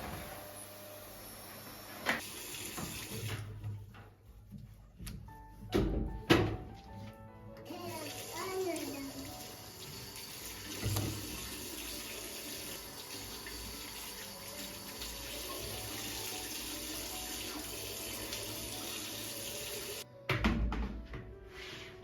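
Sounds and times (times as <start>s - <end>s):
tap water running into sink: 2.1s - 3.6s, 7.7s - 20.0s.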